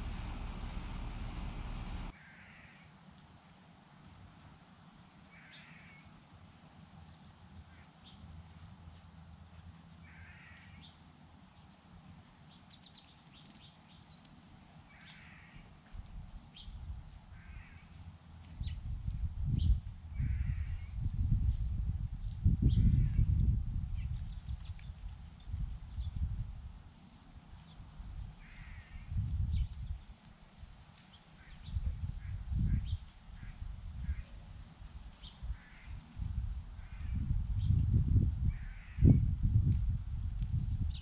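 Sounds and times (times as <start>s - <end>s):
bird calling: 0.0s - 2.1s
loud uneven low rumble: 0.0s - 2.1s
small bird chirping: 0.0s - 2.1s.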